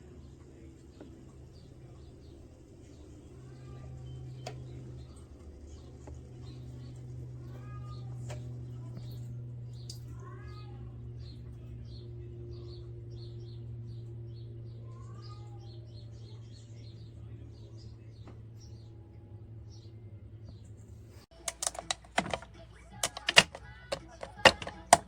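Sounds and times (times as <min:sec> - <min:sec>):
sharp clicks and taps: 0:21.4 - 0:25.0.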